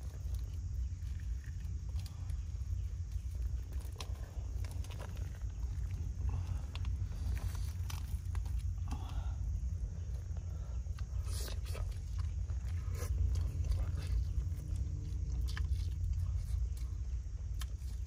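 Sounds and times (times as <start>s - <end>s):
steady low rumble: 0.0s - 18.0s
person biting and chewing food: 3.4s - 9.0s, 10.9s - 18.0s.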